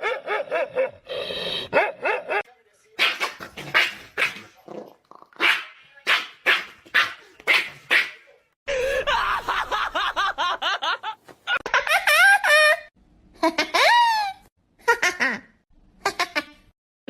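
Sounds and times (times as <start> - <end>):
dog barking: 1.7 - 2.4, 5.4 - 8.2.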